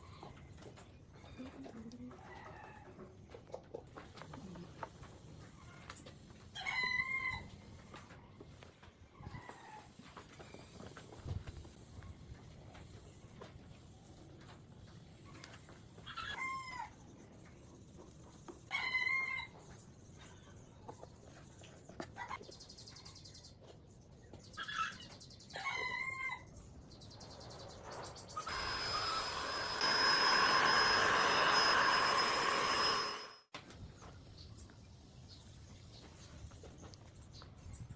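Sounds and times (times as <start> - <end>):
power tool high whine: 28.5 - 33.5.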